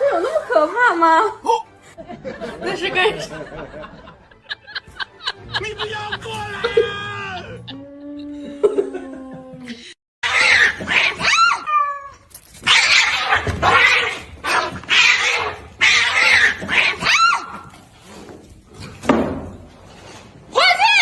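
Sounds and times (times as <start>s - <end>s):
cat hissing and wailing: 10.2s - 17.8s.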